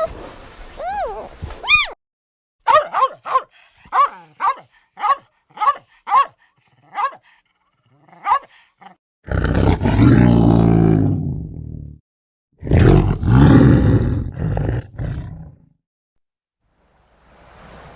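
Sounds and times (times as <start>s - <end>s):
animal barking: 2.7s - 7.2s, 8.0s - 8.5s
deep drawn-out roar: 9.3s - 12.0s, 12.6s - 15.6s.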